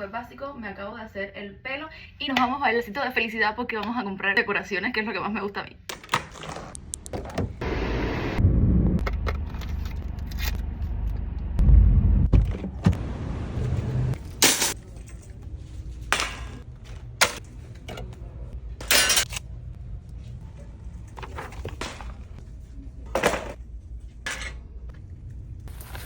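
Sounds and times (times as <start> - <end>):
low rumble with heavy thumps: 8.4 - 14.2.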